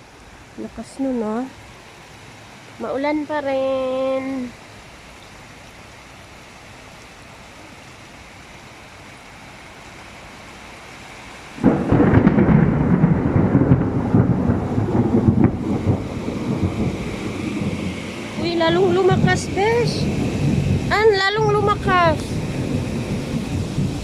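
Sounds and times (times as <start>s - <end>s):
heavy rain: 0.0s - 24.0s
thunder rumbling: 11.6s - 24.0s.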